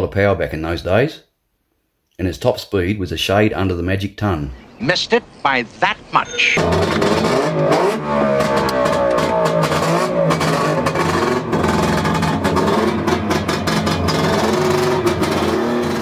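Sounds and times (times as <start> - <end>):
motorcycle engine revving: 6.6 - 16.0.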